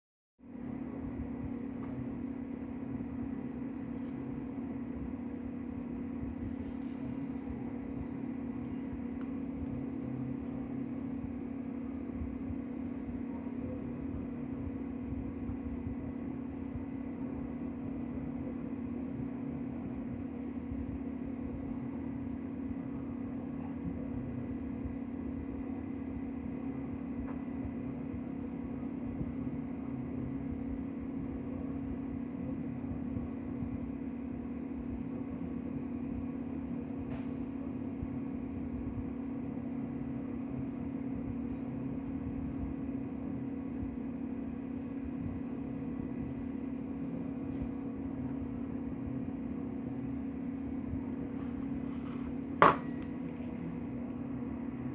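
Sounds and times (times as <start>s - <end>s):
low mechanical hum: 0.4s - 54.9s.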